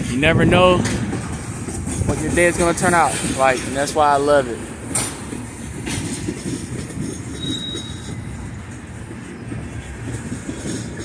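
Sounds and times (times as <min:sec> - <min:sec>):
freight train rolling past: 0:00.0 - 0:11.0
wheel squeal: 0:07.1 - 0:08.6.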